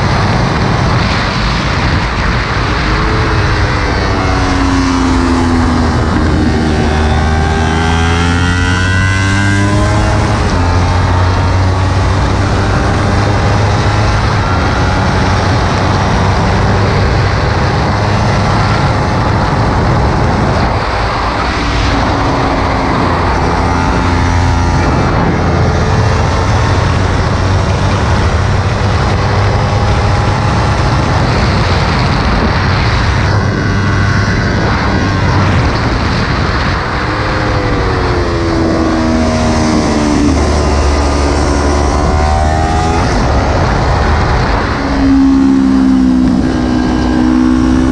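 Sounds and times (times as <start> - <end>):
motorcycle engine revving: 0.0 - 47.9
wind noise on microphone: 0.0 - 47.9.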